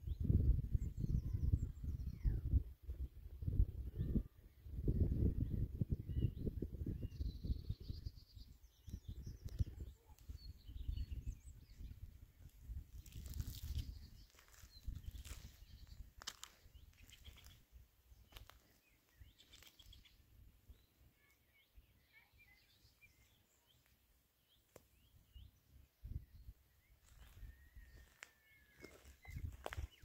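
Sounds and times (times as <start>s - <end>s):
faint bird chirps: 0.0s - 30.0s.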